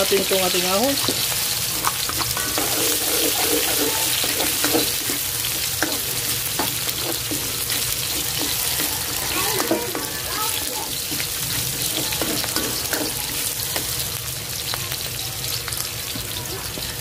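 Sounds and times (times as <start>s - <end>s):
onion and garlic sizzling in oil: 0.0s - 17.0s
utensil scraping a pan: 1.0s - 13.7s.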